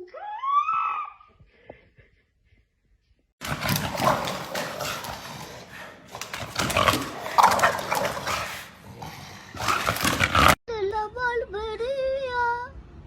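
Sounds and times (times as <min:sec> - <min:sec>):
dog growling: 0:03.4 - 0:10.6.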